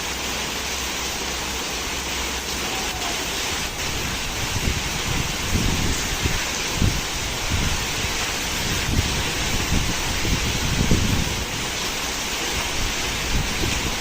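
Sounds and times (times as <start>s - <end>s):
heavy rain falling: 0.0s - 14.0s
wind buffeting microphone: 3.5s - 14.0s.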